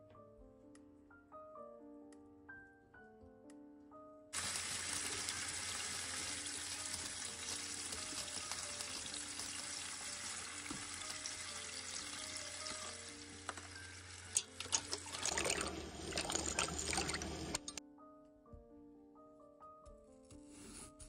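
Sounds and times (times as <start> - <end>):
chicken sizzling in hot oil: 4.4 - 17.8.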